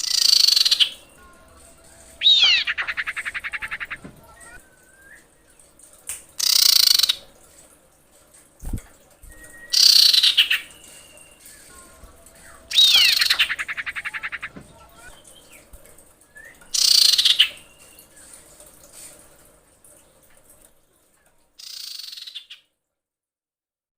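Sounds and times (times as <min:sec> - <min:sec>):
bird harsh high calls: 0:00.0 - 0:04.7, 0:09.7 - 0:15.7, 0:16.7 - 0:18.0.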